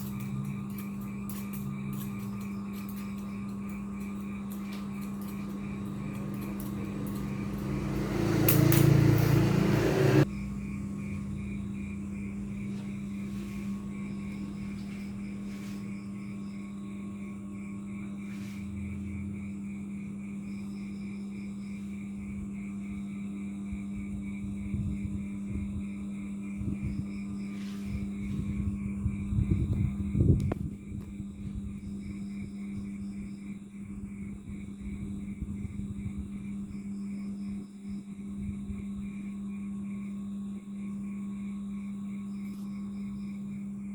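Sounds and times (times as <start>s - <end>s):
ship machinery humming: 0.0s - 16.2s.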